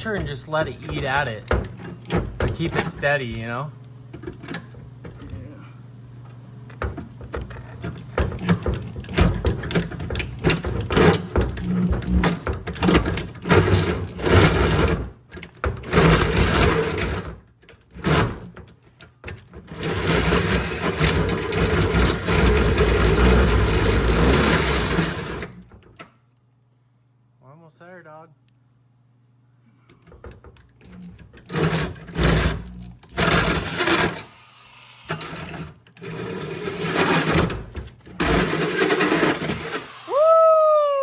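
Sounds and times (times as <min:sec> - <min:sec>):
power drill cutting metal: 0:33.2 - 0:37.5, 0:38.2 - 0:40.3.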